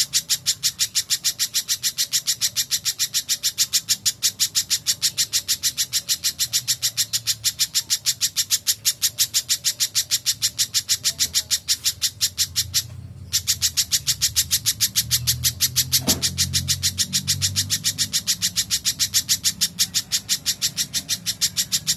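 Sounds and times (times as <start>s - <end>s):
bird chipping calls: 0.0s - 21.9s.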